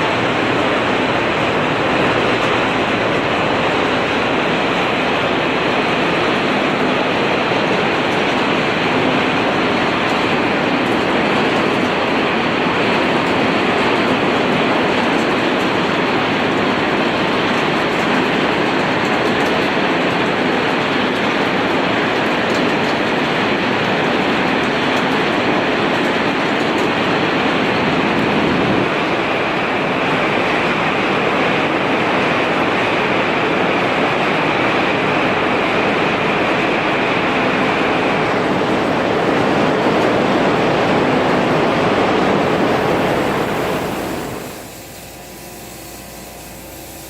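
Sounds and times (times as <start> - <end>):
arc welding crackling hiss: 42.4 - 47.0.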